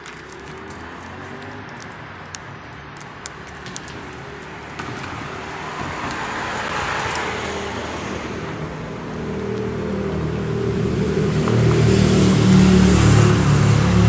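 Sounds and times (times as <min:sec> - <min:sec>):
sharp clicks: 0:00.0 - 0:05.1, 0:06.0 - 0:07.6
car passing: 0:00.0 - 0:14.0
street traffic: 0:00.0 - 0:14.0.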